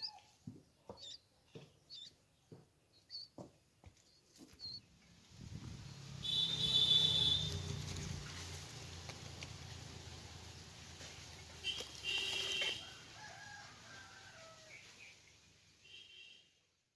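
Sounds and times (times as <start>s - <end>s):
baby bird chirping: 0.9s - 1.3s, 1.9s - 2.2s, 2.9s - 3.3s.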